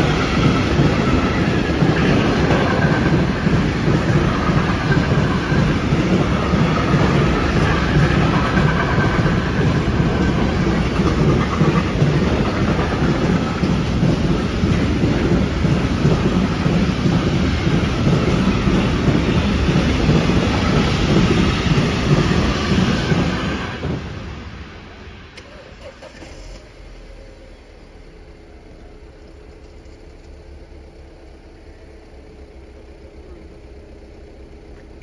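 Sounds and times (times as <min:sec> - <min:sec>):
freight train wheels clattering on rails: 0:00.0 - 0:25.4.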